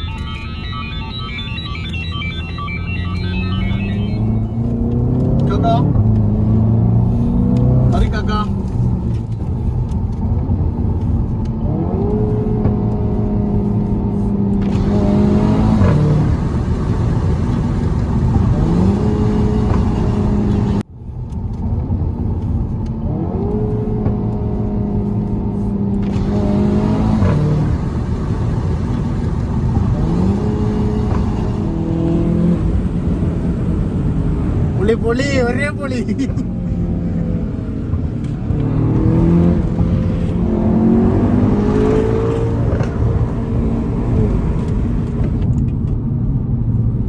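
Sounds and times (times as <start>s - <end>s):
car engine revving: 0.0s - 47.0s.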